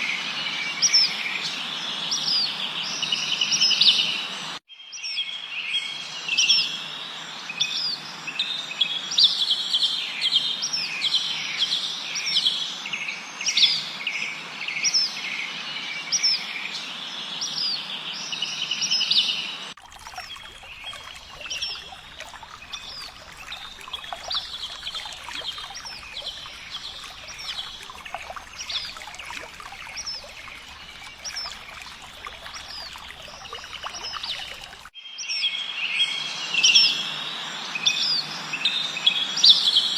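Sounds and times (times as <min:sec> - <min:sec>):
songbirds chirping: 0:14.7 - 0:39.9.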